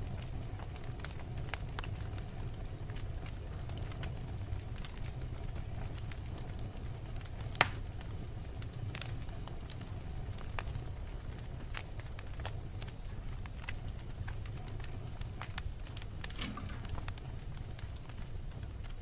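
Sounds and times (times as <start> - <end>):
flame rumbling in a fireplace: 0.0 - 19.0
logs crackling and popping: 0.0 - 19.0.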